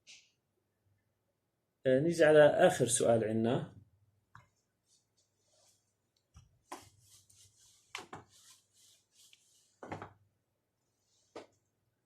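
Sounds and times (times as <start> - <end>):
soft rubbing noises: 4.4 - 10.1, 10.9 - 11.6.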